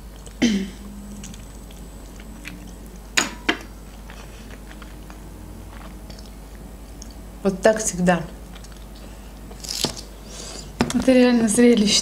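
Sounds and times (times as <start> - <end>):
person chewing: 0.0 - 7.2, 8.4 - 10.0.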